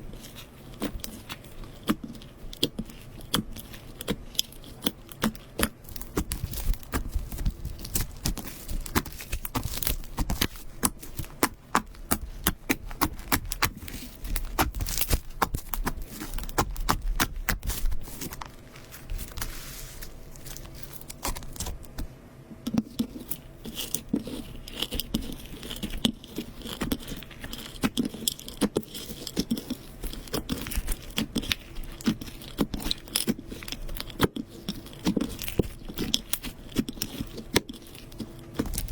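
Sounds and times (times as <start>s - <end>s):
slime squeezed crackling and popping: 0.8s - 18.5s, 20.4s - 22.0s.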